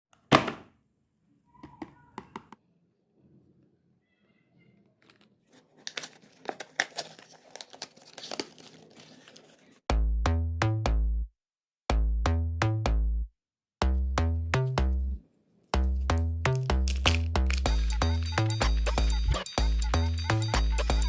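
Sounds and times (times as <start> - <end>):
plastic wrapper tearing and crinkling: 5.6 - 9.7
music with drum-machine beat: 15.8 - 21.0.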